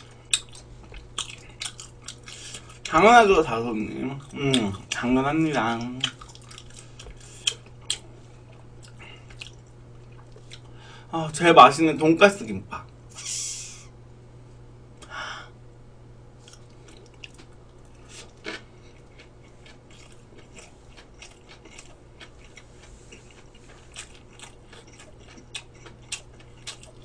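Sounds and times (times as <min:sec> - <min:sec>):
close chewing with mouth clicks: 0:00.0 - 0:03.0, 0:04.1 - 0:10.8, 0:16.4 - 0:27.0.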